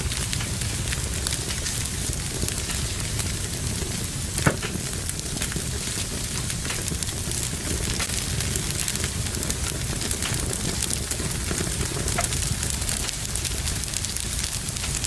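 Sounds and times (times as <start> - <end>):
fire crackling in fireplace: 0.0 - 15.0
sharp loud pop: 4.4 - 4.8.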